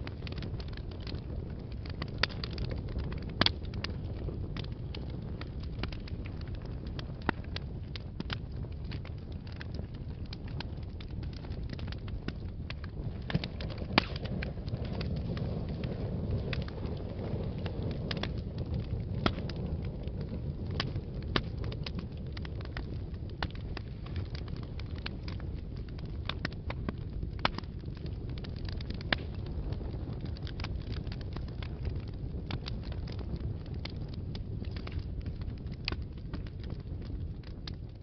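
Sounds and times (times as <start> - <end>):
fire crackling and popping: 0.0 - 38.0
fire rumbling: 0.0 - 38.0.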